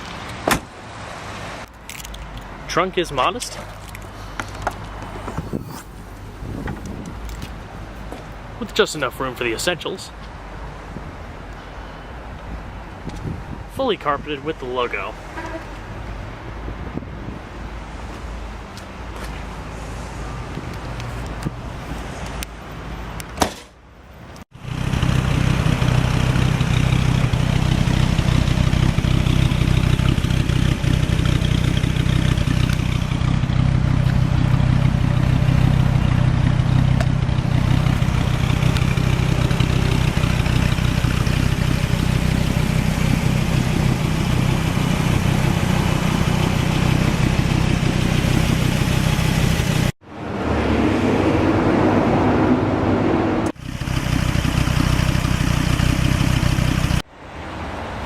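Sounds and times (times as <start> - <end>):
car engine idling: 24.6 - 50.0, 53.5 - 57.0.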